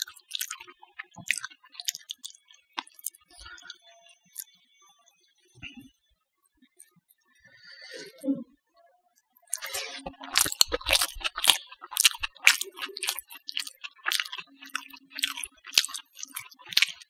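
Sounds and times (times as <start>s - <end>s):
crunchy chewing: 0.0s - 3.8s, 9.5s - 17.0s.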